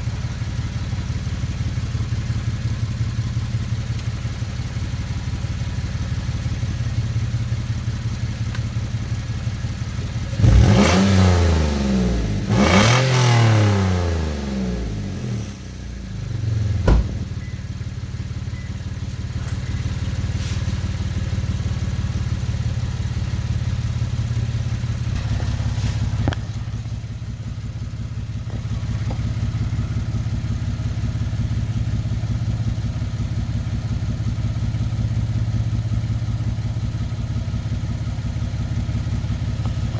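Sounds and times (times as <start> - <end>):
car engine idling and revving: 0.0 - 39.9
sharp knock: 16.8 - 17.5.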